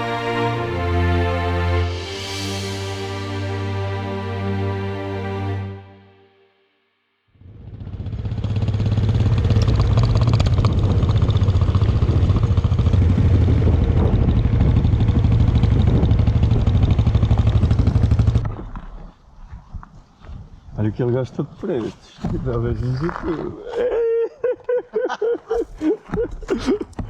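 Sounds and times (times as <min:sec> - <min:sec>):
motorcycle engine running: 0:07.4 - 0:18.5.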